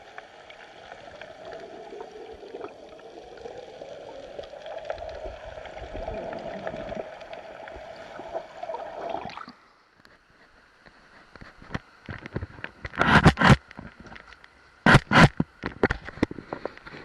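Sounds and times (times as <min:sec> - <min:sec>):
underwater rushing water: 0:00.0 - 0:09.6.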